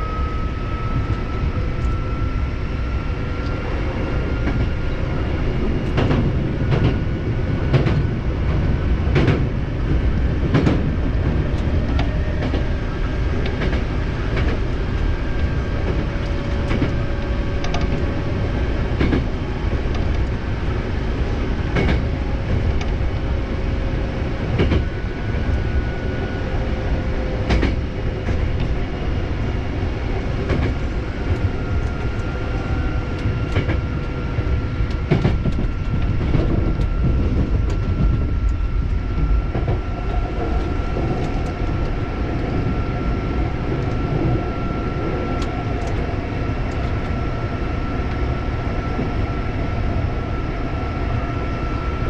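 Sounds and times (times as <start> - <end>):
thin steady whine: 0.0 - 5.7
train wheels rumbling on rail: 0.0 - 52.0.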